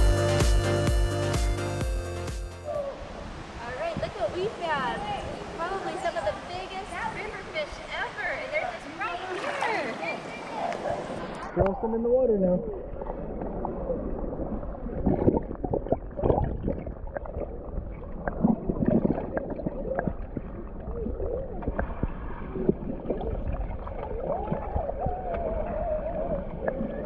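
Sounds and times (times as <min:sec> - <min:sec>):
river water gurgling: 0:02.9 - 0:11.9.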